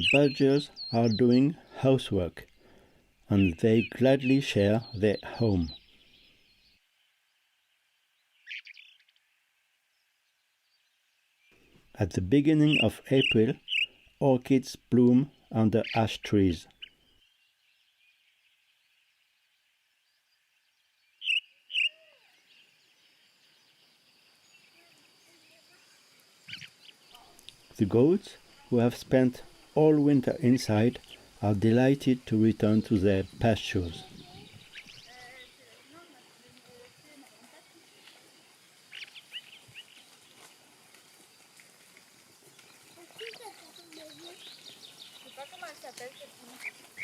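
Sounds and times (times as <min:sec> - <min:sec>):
bird chirping: 0:00.0 - 0:40.5, 0:42.5 - 0:47.0
faint background hiss: 0:00.0 - 0:47.0
faint outdoor background: 0:00.0 - 0:47.0
short sharp bird calls: 0:21.2 - 0:22.4.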